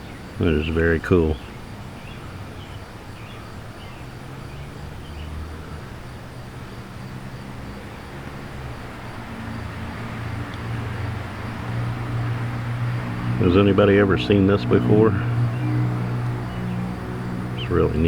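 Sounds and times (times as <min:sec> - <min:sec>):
faint bird chirps: 0:00.0 - 0:05.4
distant motor vehicle engine hum: 0:00.0 - 0:18.0.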